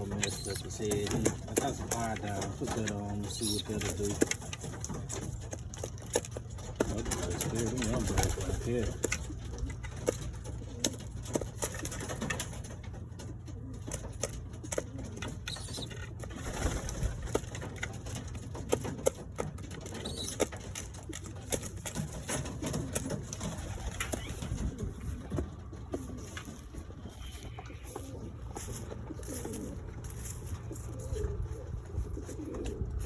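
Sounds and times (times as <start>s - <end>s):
doves cooing: 0.0s - 33.0s
steady low hum: 20.9s - 33.0s.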